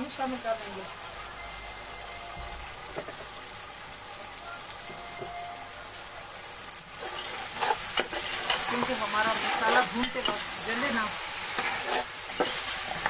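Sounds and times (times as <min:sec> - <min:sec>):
vegetables sizzling in hot oil: 0:00.0 - 0:13.0
metal spatula scraping: 0:07.0 - 0:13.0.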